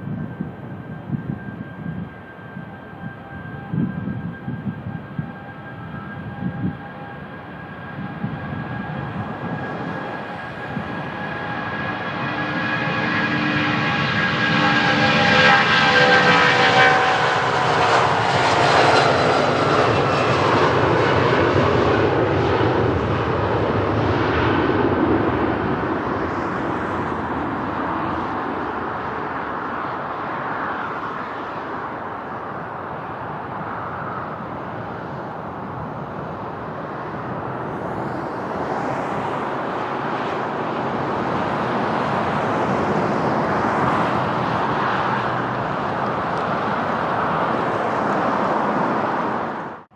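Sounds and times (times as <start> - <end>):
airliner engines whining: 0.0 - 49.9
jet rushing noise: 7.5 - 49.9.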